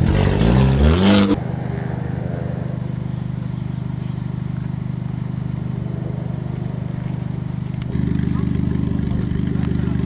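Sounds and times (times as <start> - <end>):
rally car engine running: 0.0 - 1.4, 6.5 - 10.0.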